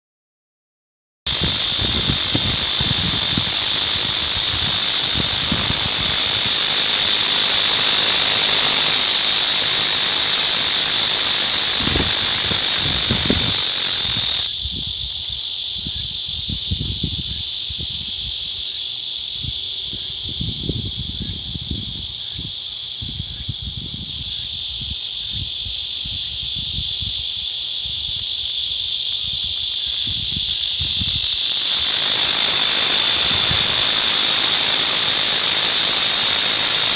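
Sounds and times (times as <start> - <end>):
cicadas buzzing: 1.3 - 36.9.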